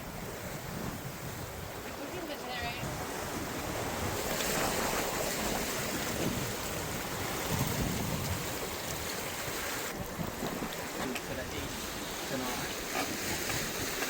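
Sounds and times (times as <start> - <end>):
water washing past hull: 0.0 - 14.0
wind on microphone: 0.0 - 14.0.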